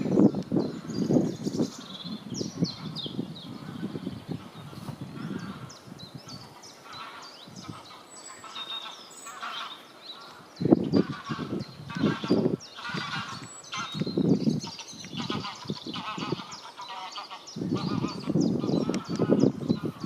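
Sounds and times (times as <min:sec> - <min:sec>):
songbirds chirping and singing: 0:00.0 - 0:20.0
geese honking: 0:06.3 - 0:10.4, 0:11.0 - 0:14.0, 0:14.6 - 0:20.0.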